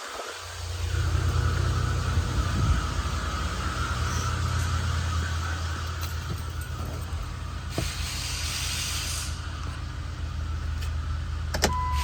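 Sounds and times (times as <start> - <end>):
car engine idling: 0.4 - 12.0
hiss: 7.7 - 9.6.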